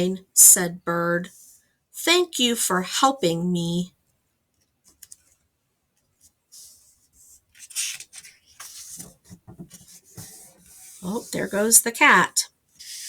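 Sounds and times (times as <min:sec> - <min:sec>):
paper page rustling: 0:04.8 - 0:05.4, 0:06.0 - 0:11.7, 0:12.7 - 0:13.0.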